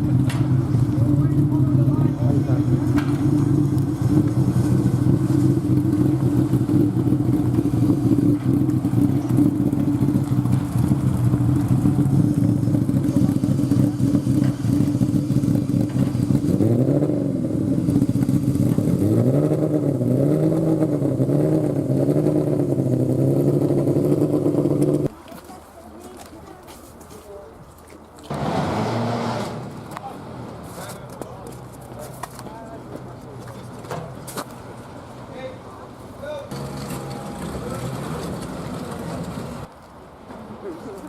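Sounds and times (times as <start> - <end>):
vehicle engine revving: 0.0 - 25.1, 28.3 - 31.6, 36.5 - 39.7.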